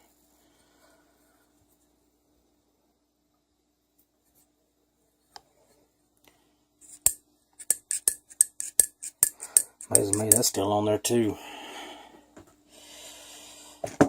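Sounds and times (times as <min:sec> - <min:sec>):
metal engine parts clicking: 0:07.6 - 0:10.5.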